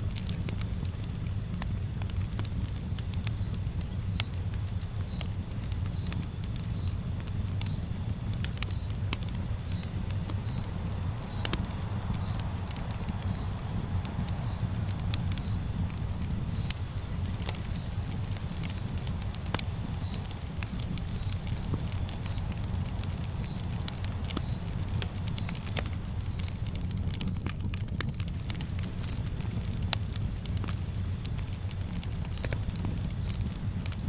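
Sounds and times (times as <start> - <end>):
campfire crackling: 0.0 - 34.0
faint high chirp: 8.6 - 9.0, 20.9 - 21.5.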